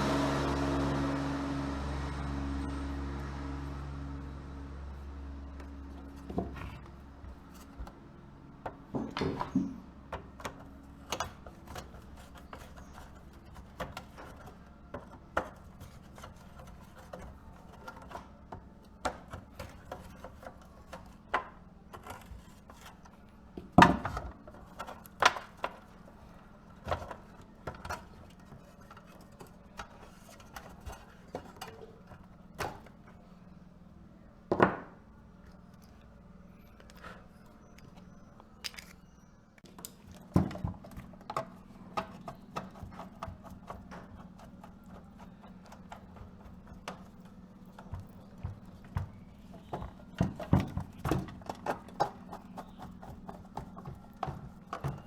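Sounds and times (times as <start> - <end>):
small hard objects clicking: 37.7 - 40.2.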